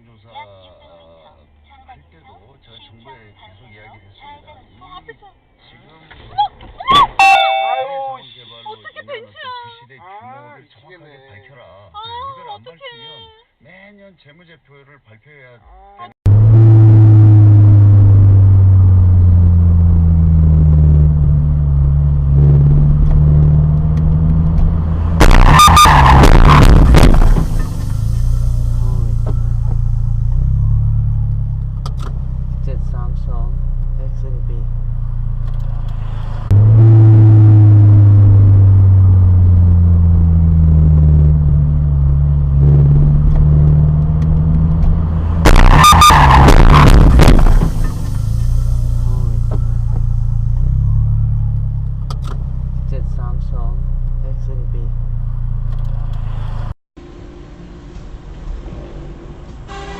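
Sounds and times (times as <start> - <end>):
road noise: 0.0 - 9.8, 16.2 - 59.9
vehicle engine drone: 16.2 - 59.9
loud sudden noise: 22.3 - 31.5, 35.7 - 41.7, 45.0 - 51.3
loud harsh burst: 25.1 - 30.0, 45.4 - 50.4.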